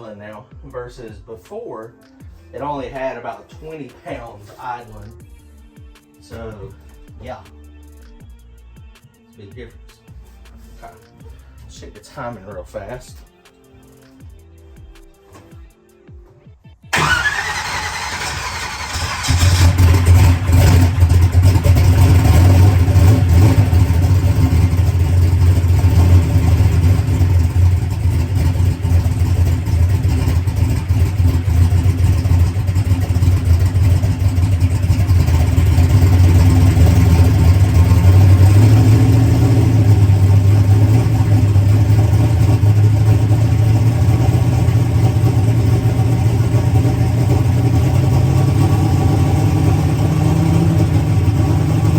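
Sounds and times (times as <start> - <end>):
drag car engine idling: 17.0 - 51.9.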